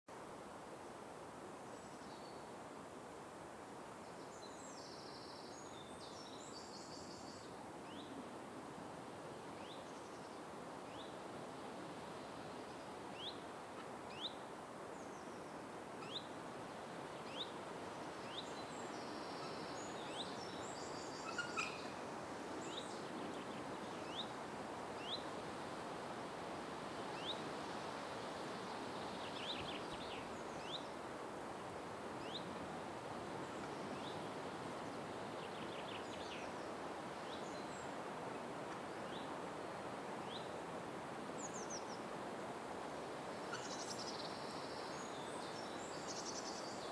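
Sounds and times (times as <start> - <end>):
steady background hiss: 0.1 - 46.9
other bird calls: 21.2 - 22.0.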